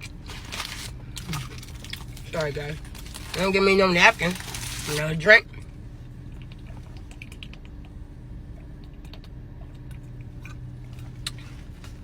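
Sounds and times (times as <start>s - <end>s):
person chewing food: 0.0s - 3.3s, 6.3s - 7.9s, 8.5s - 12.0s
low steady hum: 0.0s - 12.0s.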